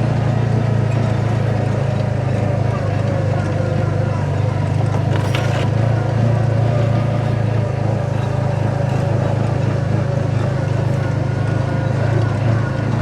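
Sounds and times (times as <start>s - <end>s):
utility vehicle engine idling: 0.0s - 13.0s
brief clatter: 4.8s - 5.9s.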